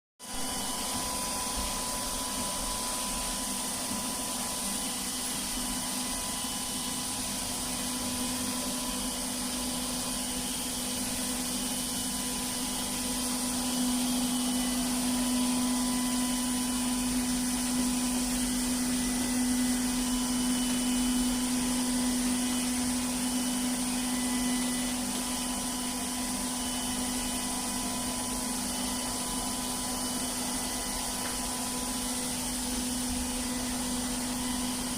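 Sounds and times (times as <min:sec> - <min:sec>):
robot cleaner motor hum: 0:00.2 - 0:34.9.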